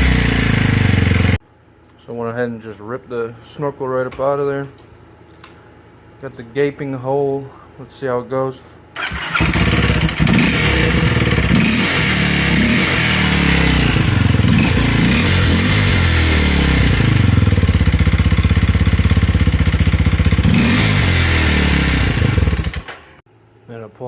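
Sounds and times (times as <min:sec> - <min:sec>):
motorcycle engine revving and idling: 0:00.0 - 0:01.4, 0:09.0 - 0:23.0.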